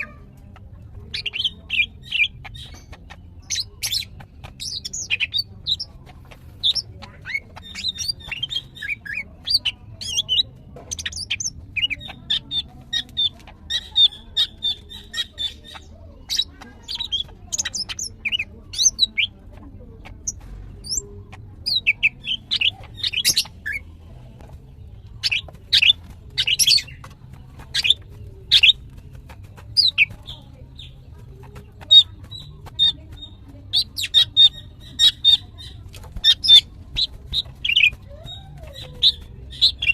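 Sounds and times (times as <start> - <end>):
bird rattling trills: 25.1 - 39.9.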